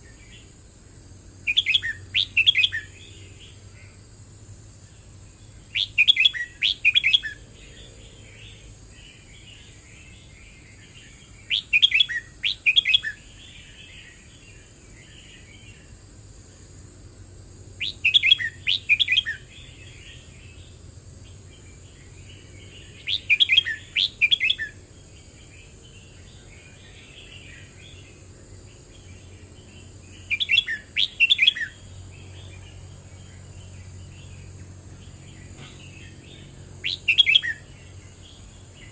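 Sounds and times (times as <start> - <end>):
bird singing warbled phrases: 1.4 - 4.0, 4.8 - 16.0, 17.7 - 38.9
bird twittering: 1.5 - 3.6, 5.7 - 8.6, 11.0 - 14.1, 17.8 - 19.9, 22.7 - 24.8, 30.2 - 31.8, 35.4 - 37.9.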